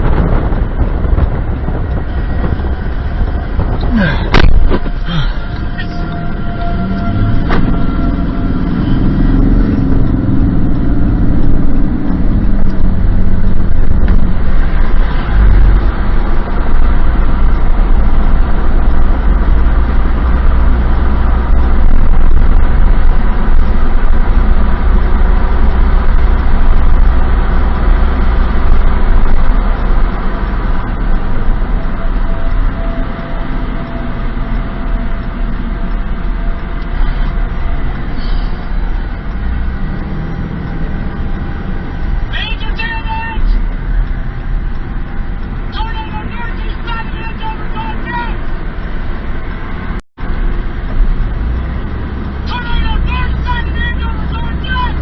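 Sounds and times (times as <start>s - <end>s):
wind buffeting microphone: 0.0s - 42.3s
tornado wind roaring: 0.0s - 55.0s.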